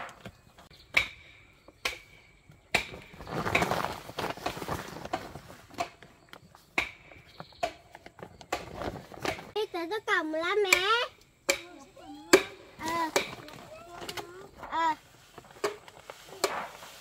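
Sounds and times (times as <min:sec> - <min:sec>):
rustling: 0:02.7 - 0:09.6, 0:12.5 - 0:17.0.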